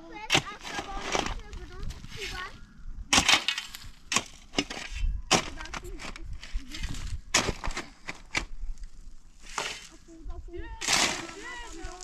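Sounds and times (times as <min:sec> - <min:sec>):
dry wood cracking: 0:10.8 - 0:12.0.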